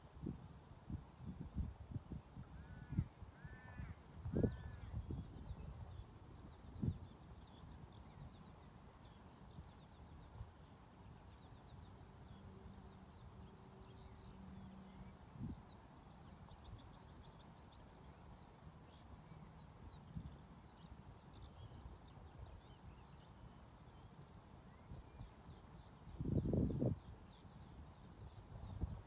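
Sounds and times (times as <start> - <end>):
birds chirping: 2.6 - 29.0.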